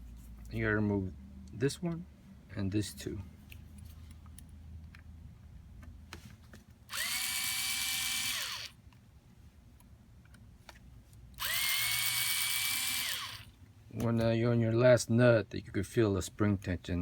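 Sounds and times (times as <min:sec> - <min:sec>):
electric drill whining: 0:06.9 - 0:08.8, 0:11.4 - 0:13.5.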